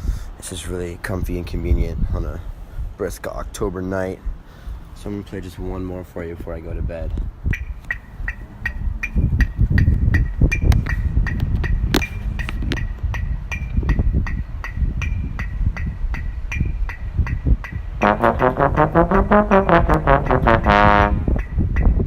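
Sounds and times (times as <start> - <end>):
low thumping pulse: 12.9 - 22.0
trombone: 18.0 - 21.4.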